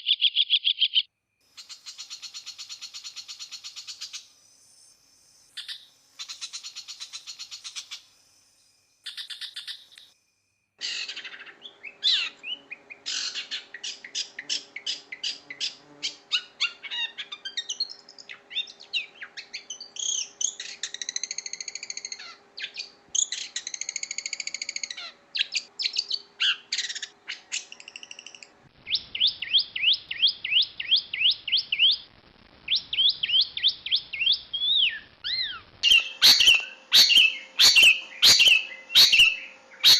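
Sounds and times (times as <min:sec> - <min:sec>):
bird singing trills and whistles: 0:00.0 - 0:10.1, 0:10.8 - 0:32.0, 0:32.7 - 0:39.9
faint steady hum: 0:01.4 - 0:39.9.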